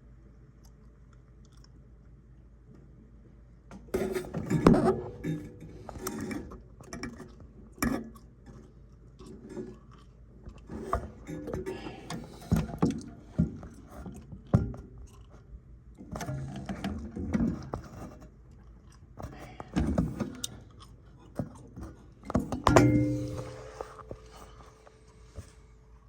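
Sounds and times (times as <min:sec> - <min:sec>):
metal clanks and scrapes: 0:03.9 - 0:08.2, 0:10.7 - 0:14.1, 0:22.2 - 0:25.6.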